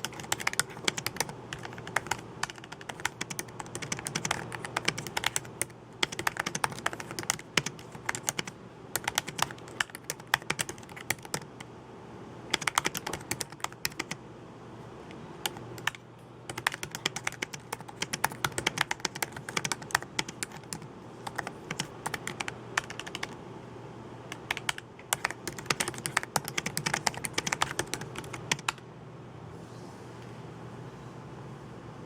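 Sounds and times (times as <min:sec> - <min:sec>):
typing on computer keyboard: 0:00.0 - 0:11.7, 0:12.5 - 0:14.2, 0:15.4 - 0:23.4, 0:24.3 - 0:28.8.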